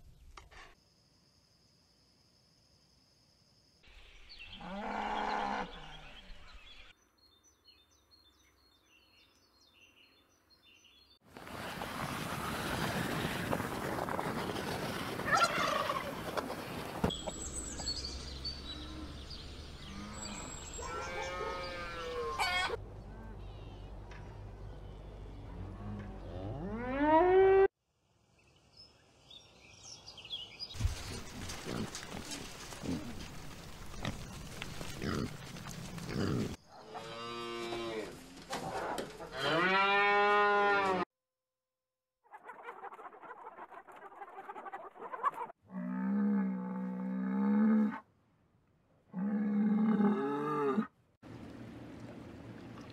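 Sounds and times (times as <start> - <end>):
background noise: 0.0 - 41.0
turkey gobbling: 15.3 - 16.2
cow mooing: 19.9 - 22.8
pig grunting: 36.1 - 37.0.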